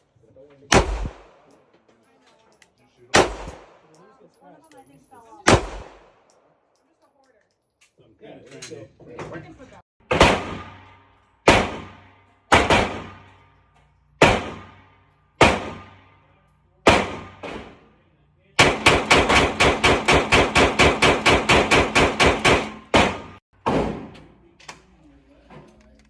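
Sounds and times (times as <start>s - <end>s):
gunshots: 0.7s - 1.6s, 3.1s - 4.0s, 5.5s - 6.3s, 10.0s - 13.4s, 14.2s - 16.2s, 16.8s - 17.9s, 18.6s - 24.3s.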